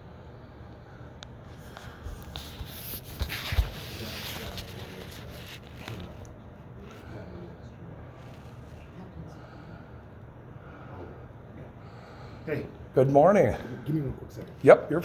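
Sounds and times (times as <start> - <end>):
rustling handling noise: 1.6 - 7.0.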